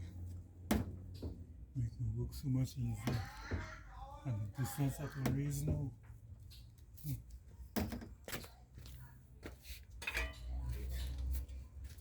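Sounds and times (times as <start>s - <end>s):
metallic clinks and knocks: 10.0s - 11.2s.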